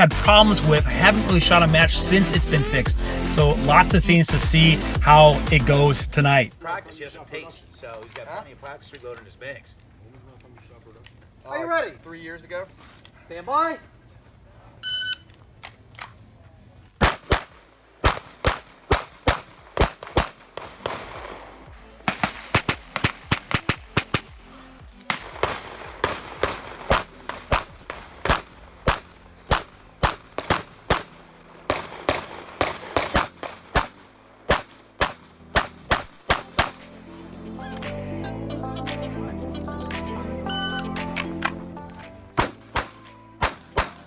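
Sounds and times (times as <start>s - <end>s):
pistol shots: 17.0s - 36.9s, 42.3s - 44.0s.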